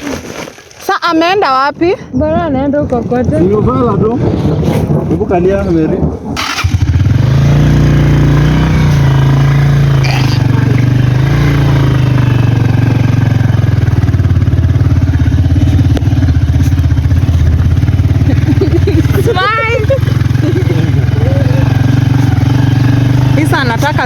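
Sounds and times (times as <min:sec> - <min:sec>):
motorcycle engine running: 0:06.4 - 0:24.0.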